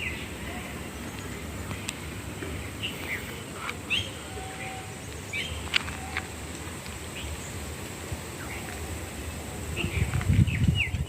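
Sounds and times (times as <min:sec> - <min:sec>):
bird chirps: 0:02.5 - 0:06.4.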